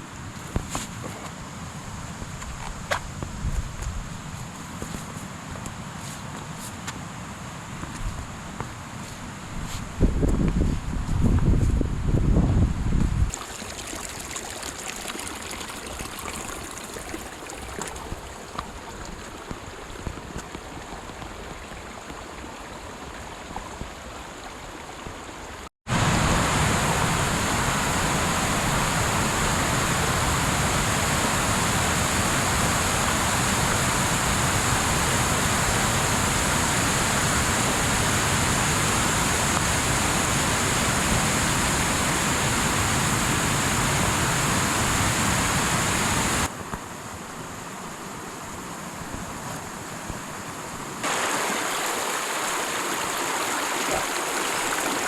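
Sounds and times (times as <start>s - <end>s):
open-air hiss: 0.0s - 55.0s
wind on microphone: 2.0s - 4.4s, 9.4s - 13.3s
mountain stream rushing: 13.3s - 55.0s.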